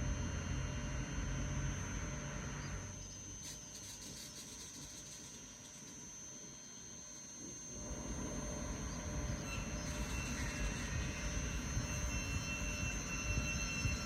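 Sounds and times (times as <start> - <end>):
high whine from rails: 0.0 - 14.0
train rumble: 7.8 - 14.0.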